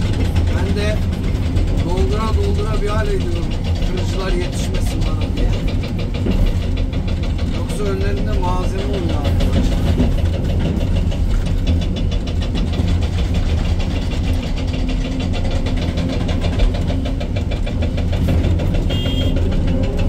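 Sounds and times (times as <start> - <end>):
diesel engine running: 0.0 - 20.0
fast even knocking: 0.0 - 20.0.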